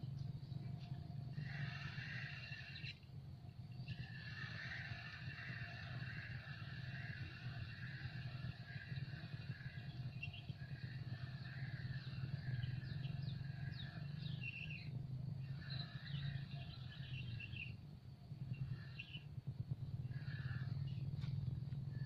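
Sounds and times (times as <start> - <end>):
small birds chirping: 0.0 - 22.0
steady low hum: 0.0 - 22.0.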